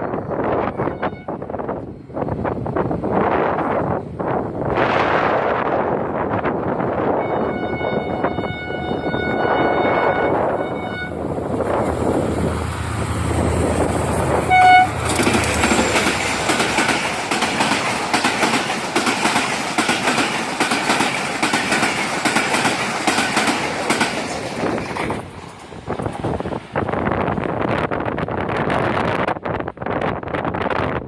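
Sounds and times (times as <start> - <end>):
train horn blast: 0.6 - 1.4, 7.2 - 11.2, 14.3 - 15.2
train wheels clattering on rails: 13.3 - 27.9.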